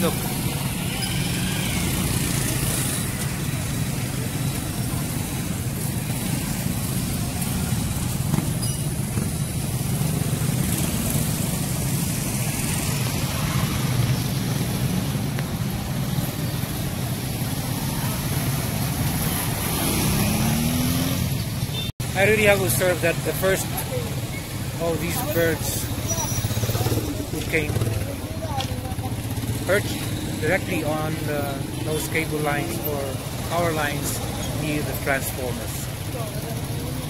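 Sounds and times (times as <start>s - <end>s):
road traffic passing: 0.0s - 37.0s
vehicle engine speeding up: 18.5s - 21.4s.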